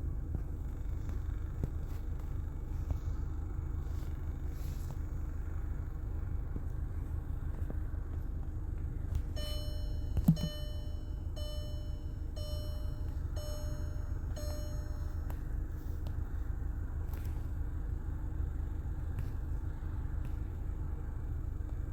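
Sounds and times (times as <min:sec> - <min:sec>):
steady low rumble: 0:00.0 - 0:21.9
electronic warning beeps: 0:09.3 - 0:15.3.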